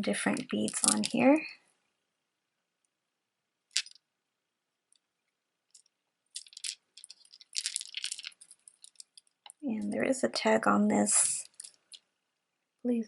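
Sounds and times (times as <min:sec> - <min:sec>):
necklace beads clicking: 0:00.4 - 0:01.4, 0:03.7 - 0:04.0, 0:05.7 - 0:10.0, 0:11.2 - 0:12.1.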